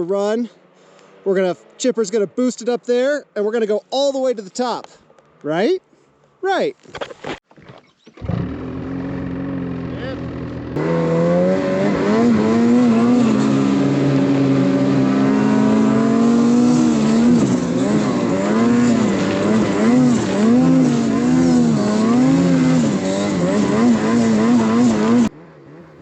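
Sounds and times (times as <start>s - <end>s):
snowmobile engine running hard: 8.2s - 26.0s.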